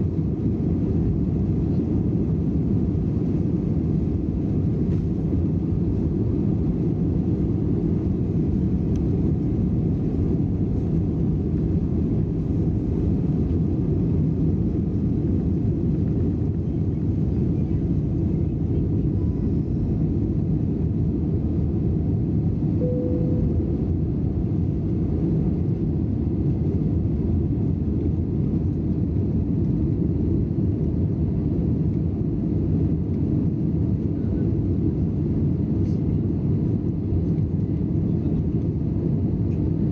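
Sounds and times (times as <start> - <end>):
airliner cabin engine rumble: 0.0 - 39.9
short faint tone: 22.8 - 24.2.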